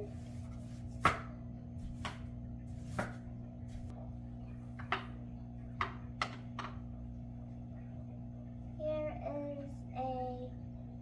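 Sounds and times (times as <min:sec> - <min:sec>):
broom sweeping: 0:00.0 - 0:01.1.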